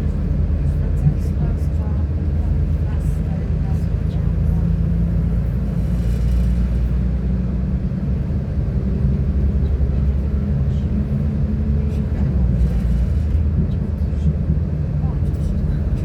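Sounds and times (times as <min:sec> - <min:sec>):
train rumbling from inside: 0:00.0 - 0:16.0.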